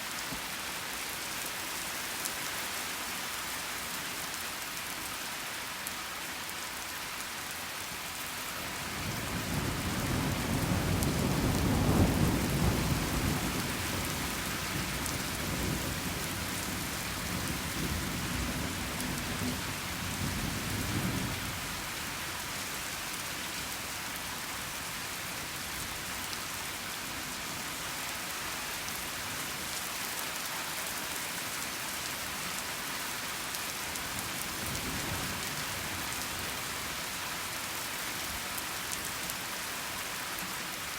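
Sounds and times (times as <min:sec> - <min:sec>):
steady rain falling: 0:00.0 - 0:40.9
rolling thunder: 0:09.1 - 0:19.6.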